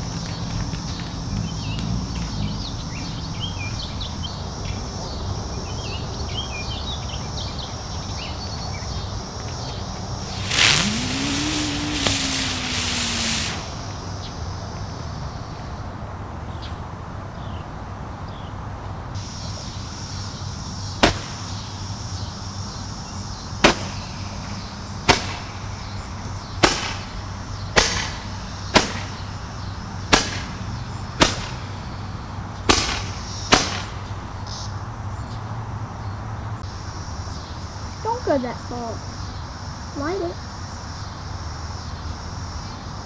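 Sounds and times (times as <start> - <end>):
steady high hiss: 0.0 - 16.2, 19.2 - 43.0
fireworks bangs: 10.2 - 14.5, 21.0 - 21.6, 23.6 - 29.2, 30.1 - 31.7, 32.7 - 34.1.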